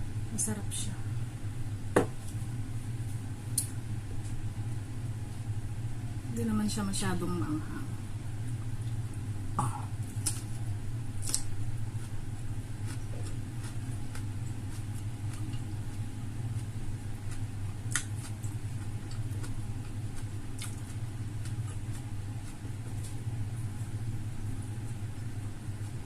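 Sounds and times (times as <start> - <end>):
steady low hum: 0.0 - 26.0
crunchy chewing: 9.9 - 24.0.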